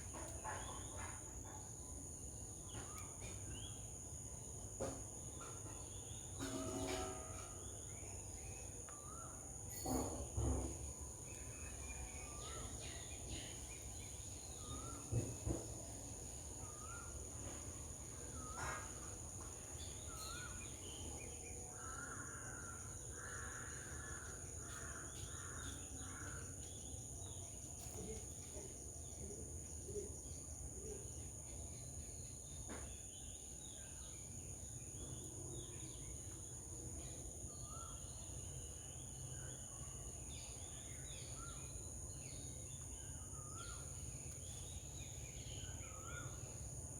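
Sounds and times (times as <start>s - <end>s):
caw-like bird calls: 21.8s - 26.5s.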